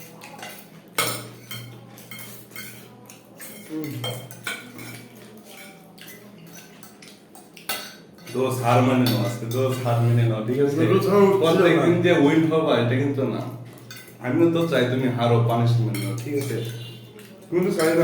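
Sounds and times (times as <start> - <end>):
cutlery clinking on plates: 0.0 - 10.1, 13.7 - 18.0.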